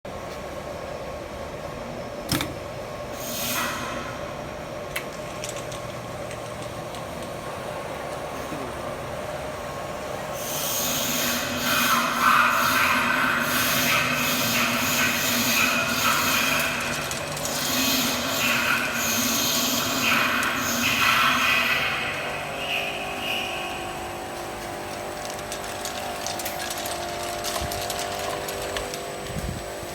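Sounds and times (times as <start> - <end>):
washing machine humming: 0.8 - 29.9
pulsing hiss: 10.4 - 24.0.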